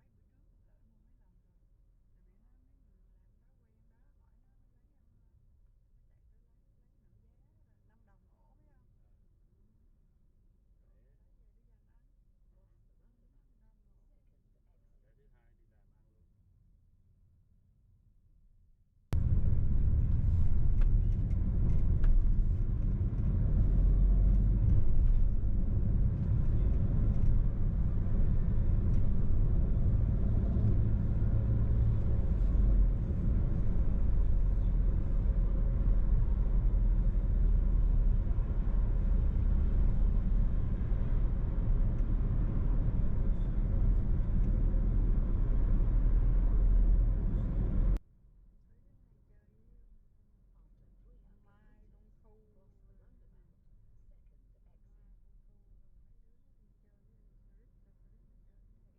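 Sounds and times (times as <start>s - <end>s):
car engine and road noise: 19.2s - 48.0s.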